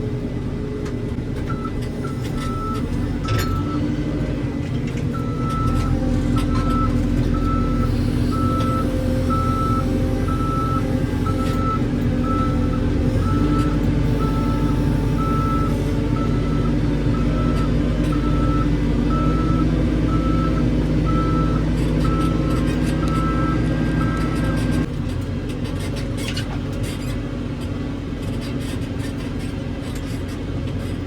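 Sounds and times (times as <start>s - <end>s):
diesel engine running: 0.0s - 31.0s
reversing alarm beeping: 5.2s - 24.8s.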